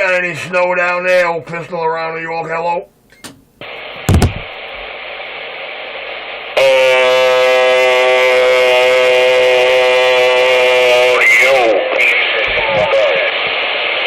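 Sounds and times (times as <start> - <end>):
sharp click: 3.1 - 3.4
buzzy steady tone: 3.6 - 14.0
radio hiss: 3.6 - 14.0.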